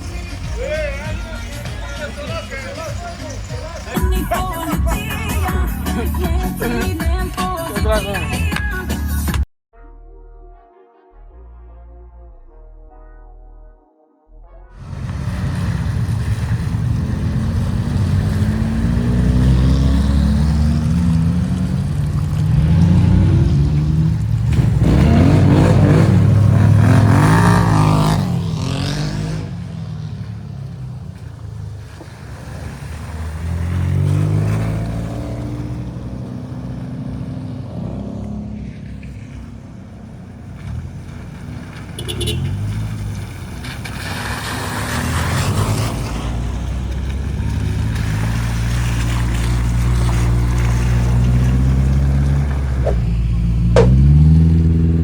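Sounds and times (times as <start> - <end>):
off-road vehicle engine revving: 14.8 - 55.0.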